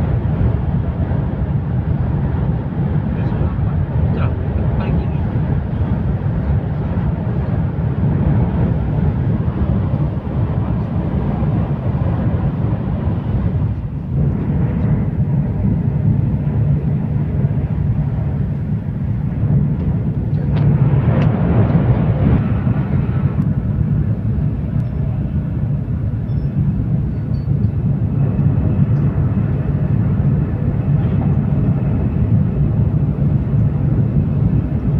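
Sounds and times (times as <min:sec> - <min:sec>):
train rumbling at speed: 0:00.0 - 0:34.9.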